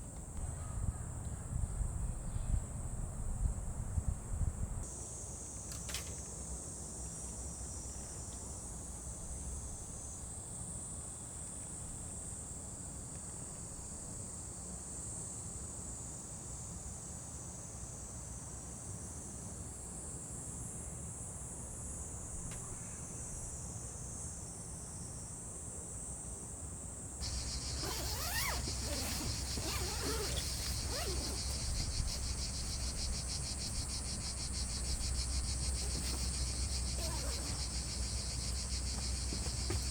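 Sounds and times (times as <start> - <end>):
insects chirring: 27.2 - 39.9.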